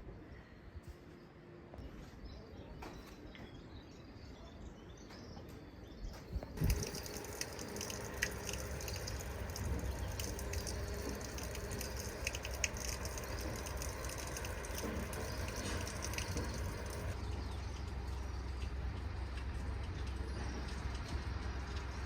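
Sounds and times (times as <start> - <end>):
running water rushing: 6.6 - 19.9.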